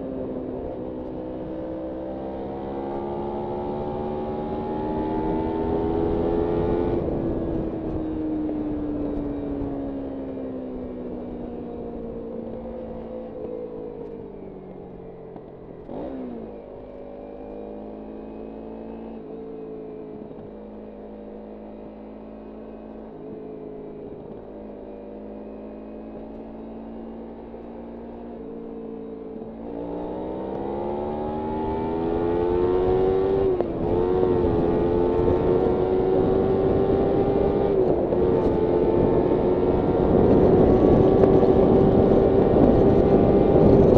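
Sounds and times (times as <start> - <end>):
motorcycle engine revving: 0.1 - 8.1, 20.2 - 43.9
wind rush: 31.6 - 43.9.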